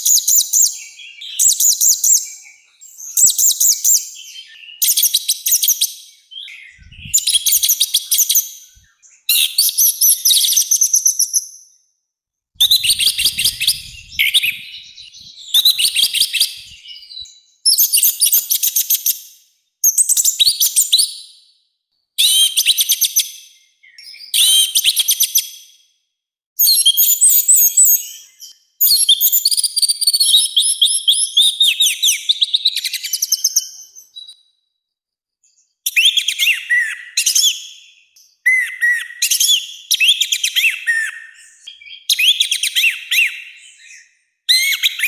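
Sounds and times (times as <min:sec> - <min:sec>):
thrush singing harsh whistled notes: 0:12.6 - 0:18.8.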